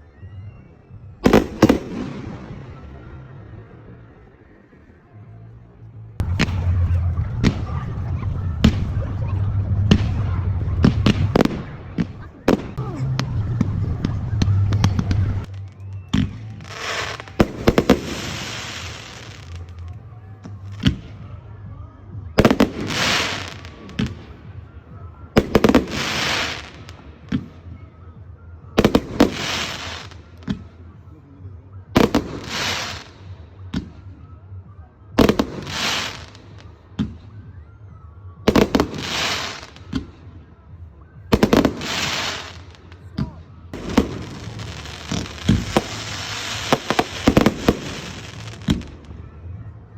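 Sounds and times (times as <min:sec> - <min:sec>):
fireworks banging: 0:01.2 - 0:03.3, 0:06.2 - 0:21.3, 0:25.4 - 0:27.5, 0:28.8 - 0:30.7, 0:41.3 - 0:49.2
fireworks crackling: 0:01.2 - 0:04.3, 0:06.2 - 0:21.6, 0:22.3 - 0:24.8, 0:25.4 - 0:27.5, 0:28.8 - 0:30.8, 0:32.0 - 0:33.9, 0:35.2 - 0:36.8, 0:38.5 - 0:40.1, 0:41.3 - 0:49.2.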